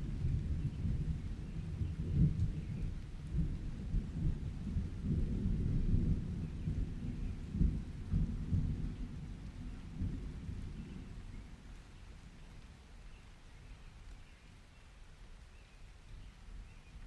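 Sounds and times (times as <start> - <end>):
thunder rumbling: 0.0 - 11.6
steady rain: 0.0 - 17.0.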